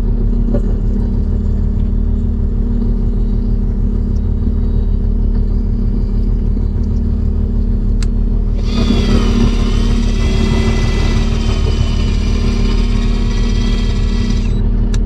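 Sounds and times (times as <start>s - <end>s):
boat engine hum: 0.0s - 15.0s
electric fishing reel whine: 8.3s - 15.0s.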